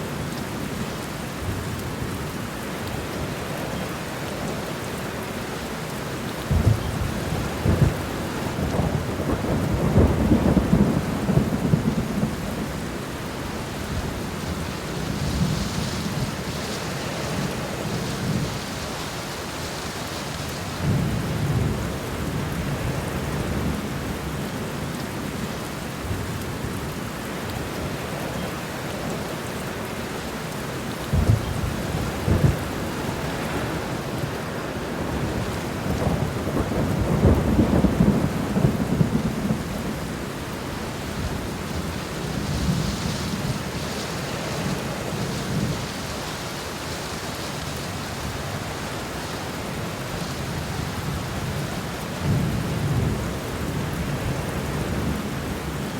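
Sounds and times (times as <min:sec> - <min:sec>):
steady rain: 0:00.0 - 0:55.9
low thunder rolling: 0:31.1 - 0:33.8, 0:35.0 - 0:40.4.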